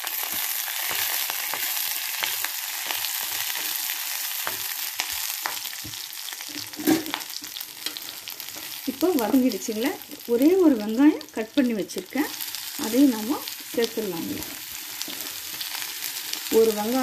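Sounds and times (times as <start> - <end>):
spices sizzling in hot oil: 0.0 - 17.0.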